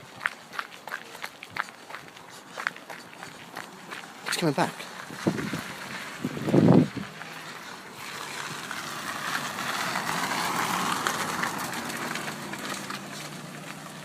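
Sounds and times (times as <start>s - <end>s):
car driving past: 3.2s - 14.0s.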